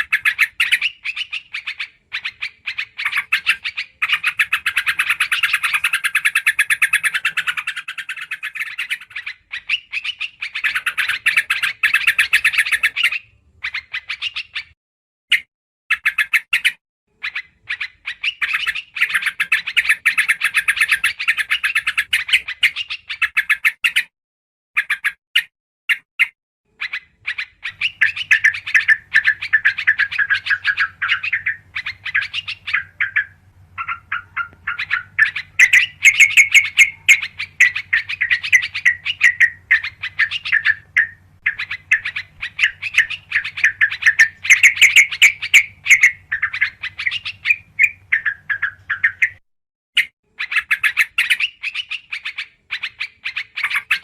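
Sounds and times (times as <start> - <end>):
bulbuls chattering: 27.2 - 49.4.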